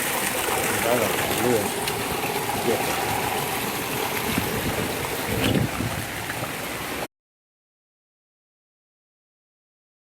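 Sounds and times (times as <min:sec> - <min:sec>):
heavy rain pouring: 0:00.0 - 0:07.1
running water: 0:00.0 - 0:07.1.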